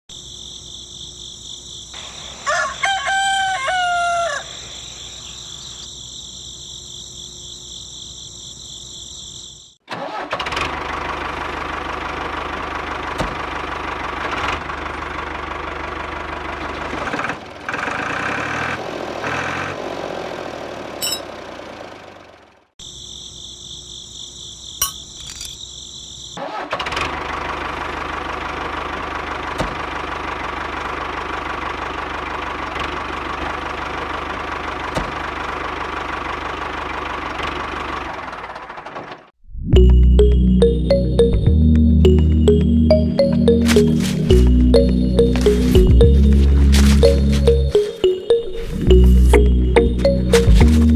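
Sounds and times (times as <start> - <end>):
rooster crowing: 2.4 - 5.0
small engine running: 10.1 - 22.7
high-pitched drone: 39.8 - 50.9.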